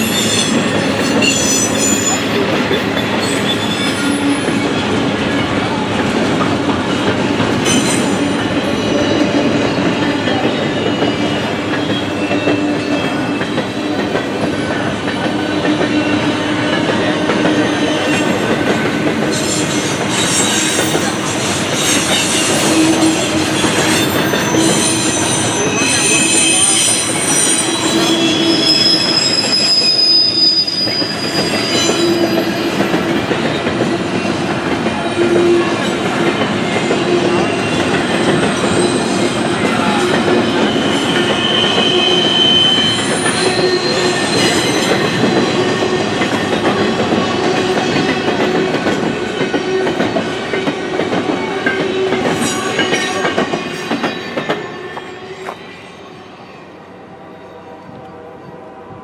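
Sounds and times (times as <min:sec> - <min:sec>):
high-pitched wheel squeal: 0:00.0 - 0:02.4, 0:03.0 - 0:04.8, 0:21.8 - 0:32.8, 0:39.8 - 0:45.6
train wheel and rail noise: 0:00.0 - 0:59.0.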